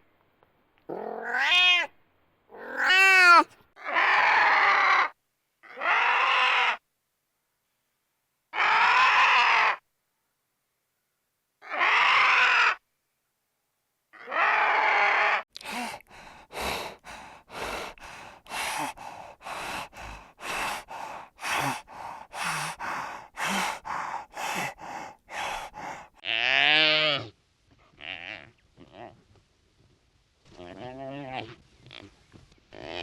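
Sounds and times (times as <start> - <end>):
long raspy animal calls: 0.9 - 1.9, 2.5 - 6.8, 8.6 - 9.8, 11.6 - 12.8, 14.2 - 27.1
short animal calls: 2.6 - 4.8.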